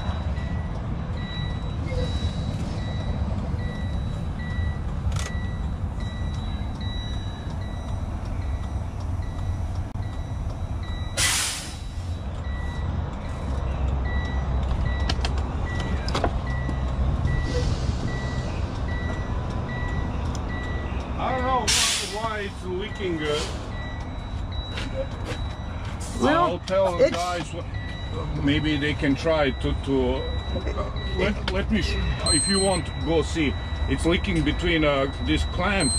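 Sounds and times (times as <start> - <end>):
electronic beep: 0.0 - 11.2, 27.2 - 35.9
truck idling: 0.0 - 35.9
air brake hiss: 11.2 - 12.1, 21.7 - 22.2, 23.3 - 23.7.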